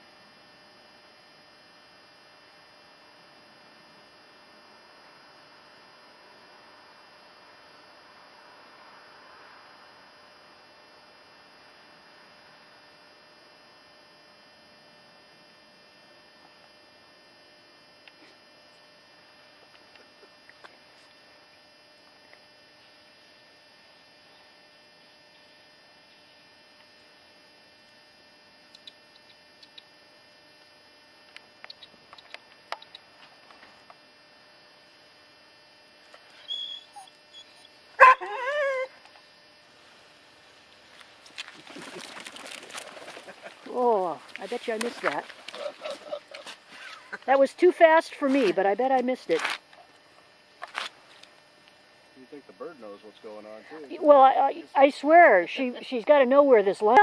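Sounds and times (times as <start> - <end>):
faint steady hum: 0.0 - 57.0
dog yelping: 36.4 - 38.9.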